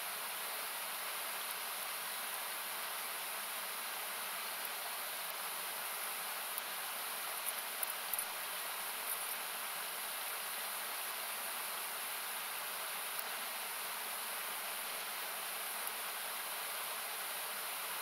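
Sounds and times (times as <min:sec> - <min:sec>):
river rushing: 0:00.0 - 0:18.0.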